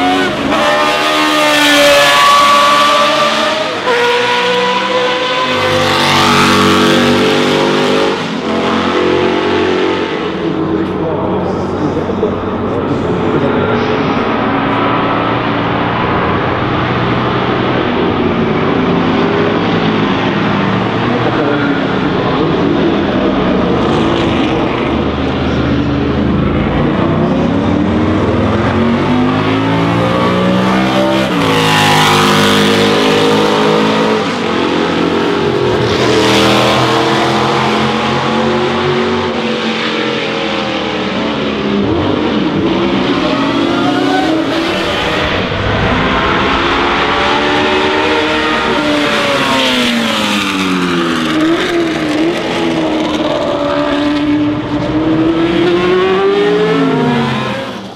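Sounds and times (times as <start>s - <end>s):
racing car engines revving past: 0.0s - 57.9s.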